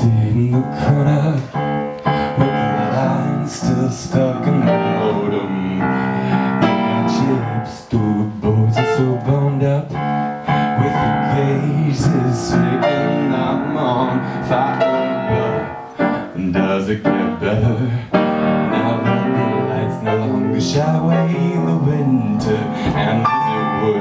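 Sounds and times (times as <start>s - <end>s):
piano chords: 0.0s - 24.0s.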